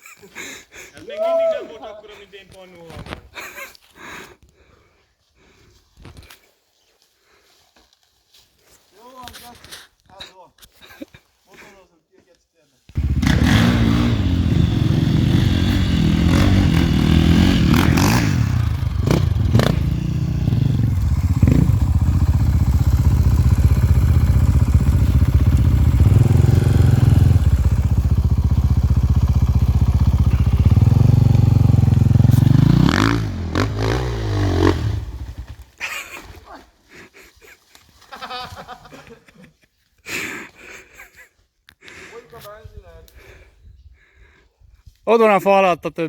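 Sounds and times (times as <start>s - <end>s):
motorcycle engine under throttle: 13.0s - 35.8s.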